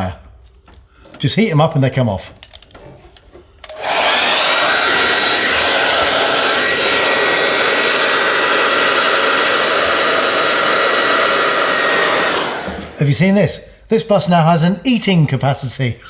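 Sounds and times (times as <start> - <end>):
hairdryer motor whine: 3.6 - 13.0
hairdryer blowing air: 3.6 - 13.1.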